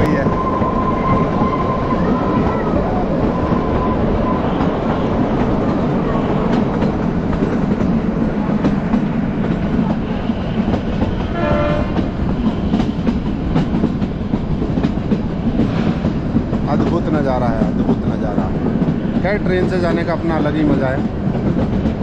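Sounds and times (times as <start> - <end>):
train coaches rumbling and rattling: 0.0 - 22.0.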